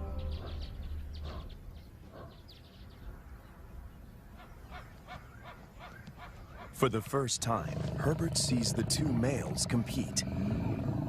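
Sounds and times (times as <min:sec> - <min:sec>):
lions growling and snarling: 0:07.3 - 0:11.0.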